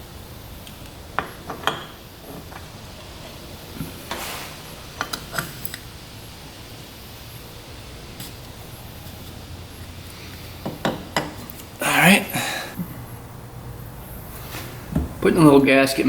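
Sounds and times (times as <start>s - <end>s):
scraping rustle: 2.2s - 5.7s, 14.3s - 14.9s.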